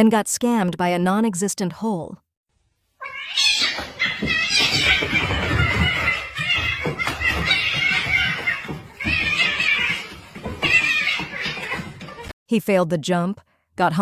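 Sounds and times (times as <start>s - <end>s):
people talking: 12.5s - 14.0s.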